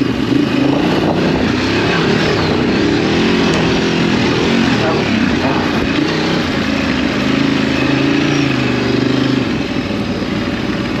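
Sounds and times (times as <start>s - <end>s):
motorcycle engine running: 0.0s - 11.0s
wind noise: 0.1s - 6.8s.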